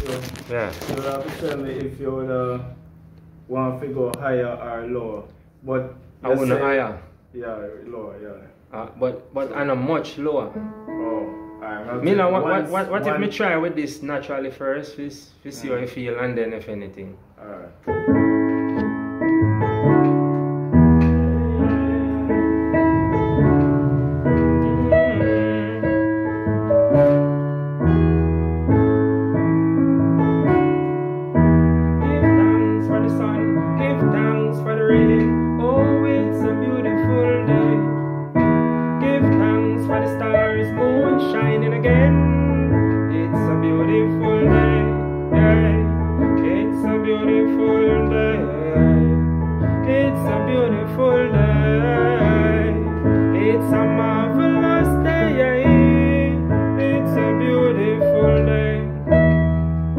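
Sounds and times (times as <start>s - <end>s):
keyboard playing sustained chords: 18.2s - 38.8s
low bass notes: 19.0s - 37.8s.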